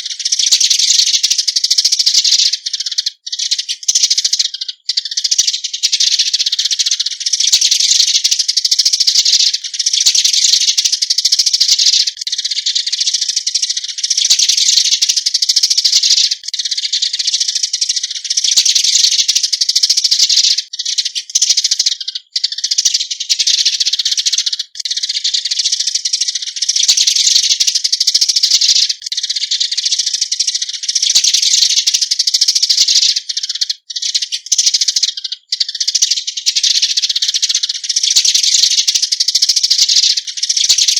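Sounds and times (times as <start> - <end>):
sparrows chirping: 0.0 - 40.9.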